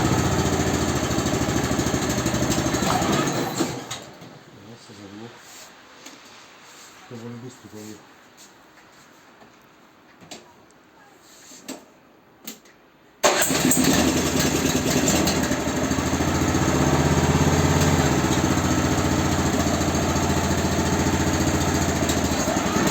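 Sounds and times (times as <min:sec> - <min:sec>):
snowblower engine starting and running: 0:00.0 - 0:04.4, 0:13.2 - 0:22.9.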